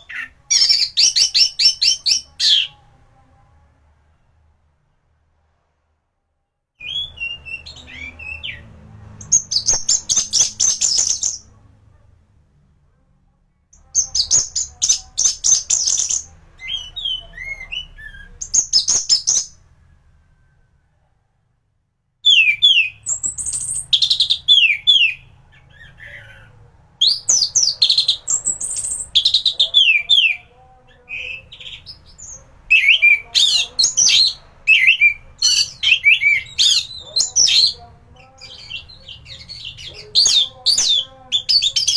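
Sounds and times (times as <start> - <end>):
faint low hum: 0.0 - 41.9
thrush singing whistled phrases: 6.8 - 8.6, 14.0 - 19.6, 22.3 - 25.3, 31.1 - 37.8.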